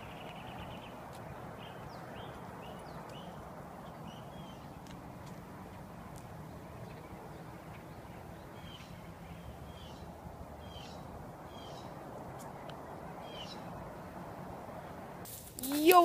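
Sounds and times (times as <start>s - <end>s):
bird chirping: 0.0s - 4.8s, 6.5s - 12.0s, 13.2s - 13.7s
steady outdoor hiss: 0.0s - 16.0s.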